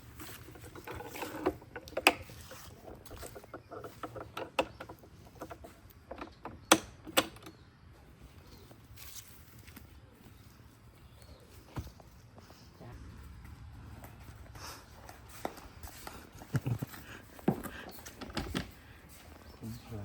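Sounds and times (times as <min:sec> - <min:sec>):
irregular knocks and clicks: 0:00.5 - 0:07.6.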